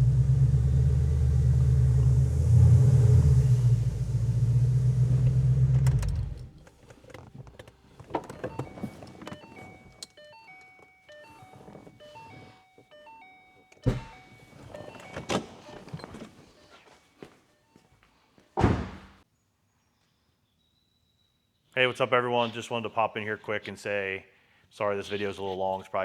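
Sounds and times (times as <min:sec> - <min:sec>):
car engine rumbling: 0:00.0 - 0:12.9, 0:13.6 - 0:16.8.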